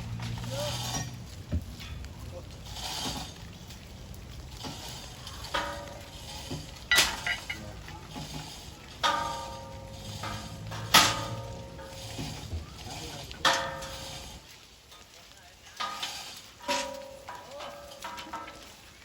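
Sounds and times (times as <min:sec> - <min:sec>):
metal pipe struck ringing: 0:09.0 - 0:12.0.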